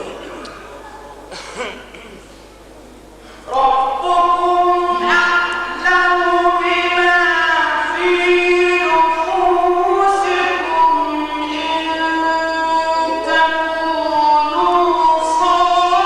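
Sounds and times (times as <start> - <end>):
man chanting religious text: 3.4 - 16.0.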